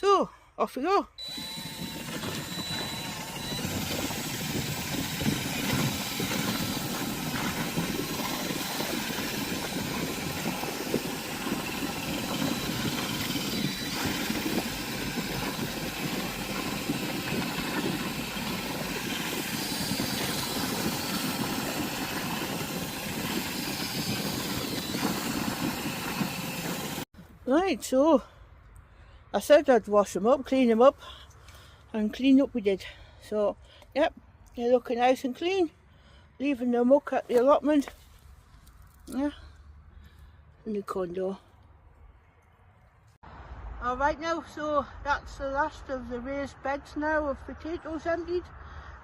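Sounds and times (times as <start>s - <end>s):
power drill motor drone: 1.2s - 27.1s
water churning: 1.2s - 27.1s.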